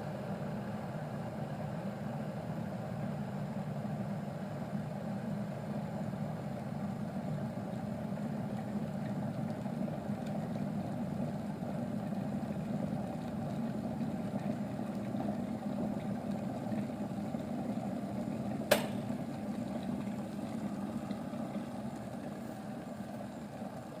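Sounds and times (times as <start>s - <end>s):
kettle boiling rumble: 0.0s - 24.0s
sharp kettle click: 18.7s - 19.2s.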